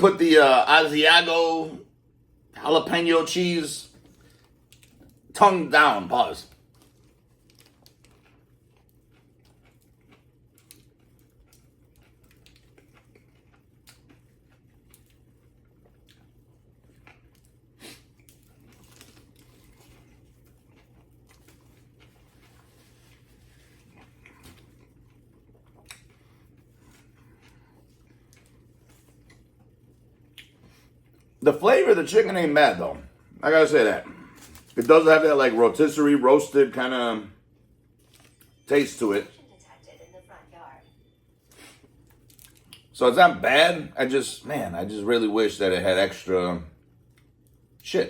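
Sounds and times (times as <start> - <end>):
steady low hum: 0.0 - 48.0
chewing and biting sandwich: 3.9 - 5.3, 6.4 - 31.4, 33.1 - 35.8, 41.3 - 43.0, 46.8 - 47.8.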